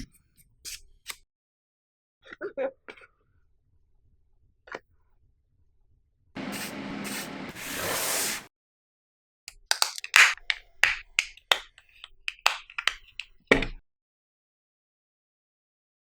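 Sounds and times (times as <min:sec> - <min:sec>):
hissing rush: 0:06.4 - 0:08.5
plastic parts clicking and snapping: 0:09.5 - 0:13.4.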